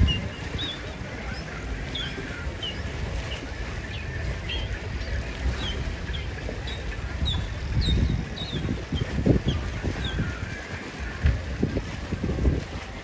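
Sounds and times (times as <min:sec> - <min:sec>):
small birds chirping: 0:00.0 - 0:10.3
steady low rumble: 0:00.0 - 0:13.0.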